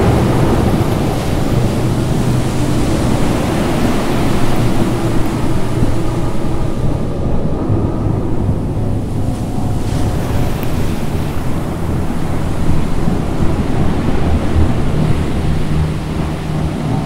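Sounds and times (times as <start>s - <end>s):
low steady drone: 0.0s - 17.0s
rushing churning water: 0.0s - 17.0s.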